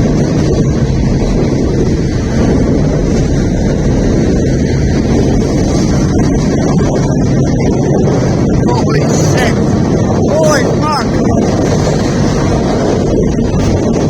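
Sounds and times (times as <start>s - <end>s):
train passing with deep rumble: 0.0s - 14.0s
wind buffeting microphone: 0.0s - 14.0s.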